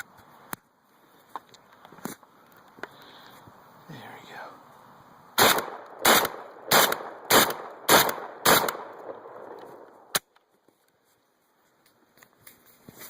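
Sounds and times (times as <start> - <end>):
shotgun firing: 5.4 - 9.5.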